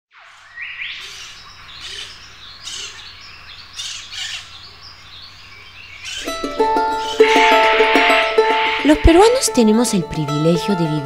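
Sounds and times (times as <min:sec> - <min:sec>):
background birdsong: 0:00.1 - 0:09.8
birds calling: 0:00.2 - 0:09.3
loud repeating bird call: 0:06.0 - 0:09.2.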